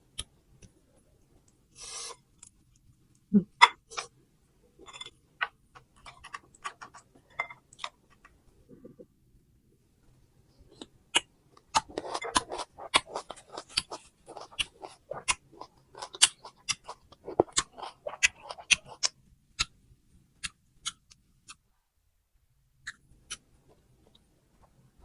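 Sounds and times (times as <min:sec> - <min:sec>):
chewing crisp fruit: 0:10.8 - 0:19.7.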